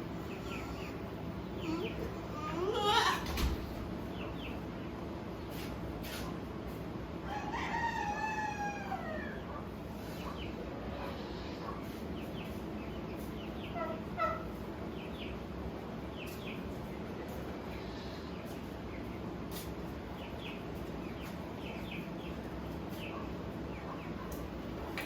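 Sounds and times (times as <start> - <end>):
low barnyard background noise: 0.0 - 25.0
rooster crowing: 7.2 - 9.4
chicken clucking: 7.3 - 15.3.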